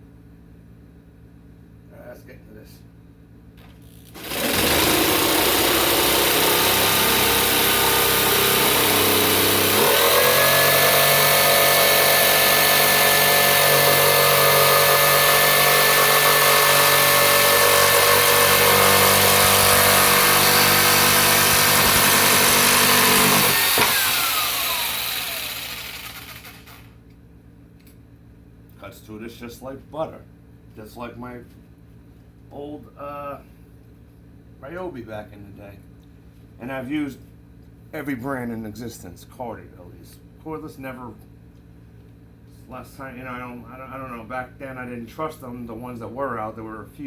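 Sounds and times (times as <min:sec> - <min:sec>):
jigsaw sawing: 0:04.0 - 0:26.9.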